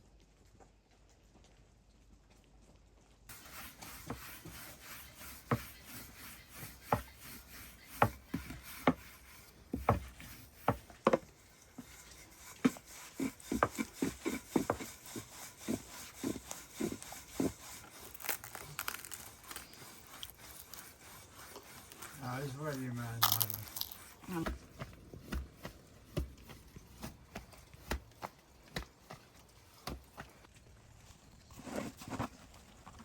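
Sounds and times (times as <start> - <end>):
scraping: 3.3 - 24.9.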